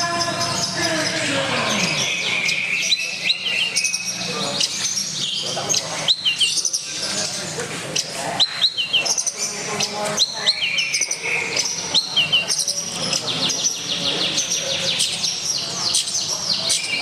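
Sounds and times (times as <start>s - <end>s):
murmur of voices: 0.0s - 17.0s
songbirds chirping: 0.0s - 17.0s.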